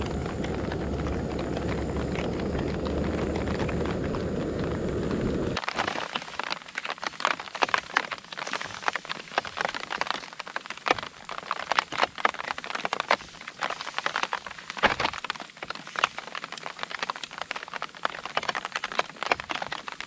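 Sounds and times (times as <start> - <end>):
steady low rumble: 0.0 - 5.6
crackling and popping: 0.0 - 20.0.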